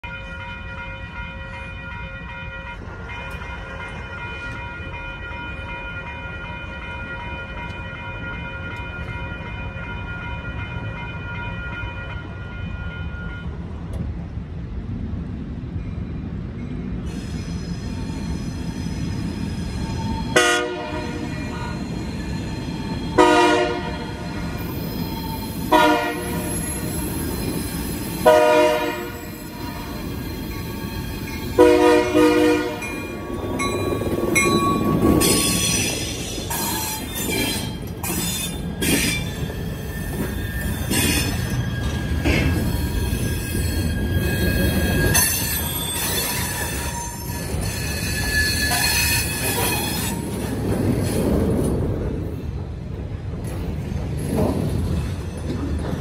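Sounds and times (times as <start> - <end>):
train wheels squealing: 17.0 - 20.4, 21.3 - 23.2, 24.0 - 28.3, 29.0 - 31.6, 32.8 - 52.0
locomotive horn blasts: 20.4 - 21.7, 23.2 - 24.3, 25.7 - 26.5, 28.2 - 30.0, 31.6 - 33.0
freight cars clanking over rails: 32.7 - 52.6, 53.2 - 56.0.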